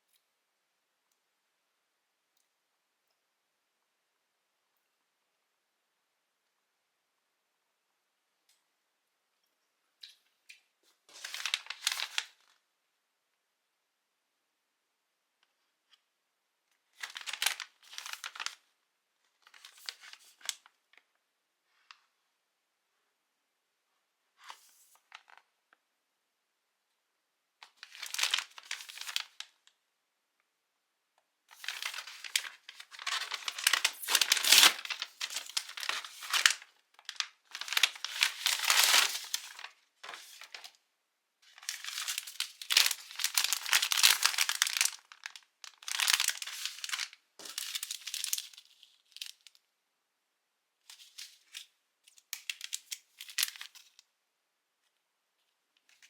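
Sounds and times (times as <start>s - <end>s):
packaging crinkling and tearing: 11.1s - 12.4s, 17.0s - 18.6s, 27.6s - 29.5s, 31.5s - 40.8s, 41.5s - 49.6s, 50.9s - 54.0s.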